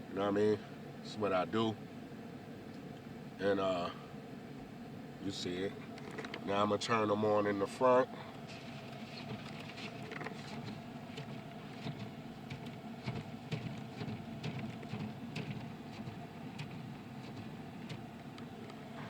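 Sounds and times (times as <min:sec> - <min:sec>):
light irregular ticks and patter: 0:08.3 - 0:19.0.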